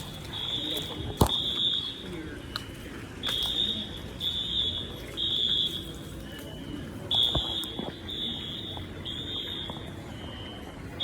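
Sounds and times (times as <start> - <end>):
electronic alarm beeping: 7.1 - 10.7.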